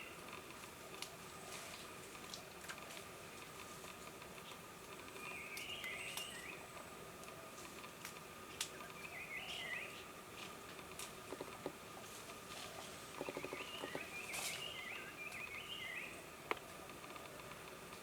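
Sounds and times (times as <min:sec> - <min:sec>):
twittering bird calls: 0:05.2 - 0:06.7, 0:08.6 - 0:10.0, 0:13.1 - 0:17.4.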